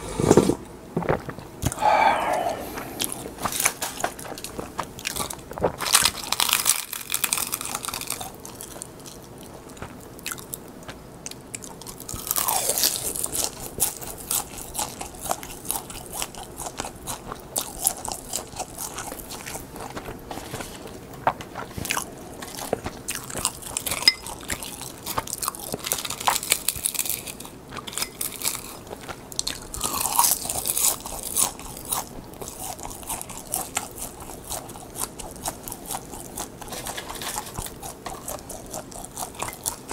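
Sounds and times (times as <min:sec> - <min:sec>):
chewing: 0:01.0 - 0:39.9
crunching crisp seaweed: 0:02.2 - 0:39.9.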